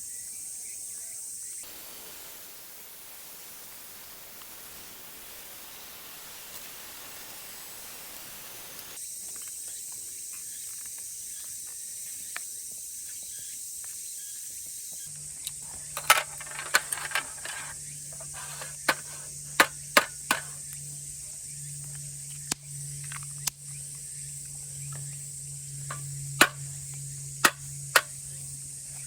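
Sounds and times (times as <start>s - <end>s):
cicada drone: 0.0s - 29.0s
even hiss: 1.3s - 11.2s, 15.0s - 29.0s
low steady hum: 15.1s - 29.0s
sharp knocks and clicks: 25.8s - 26.7s, 27.4s - 28.2s.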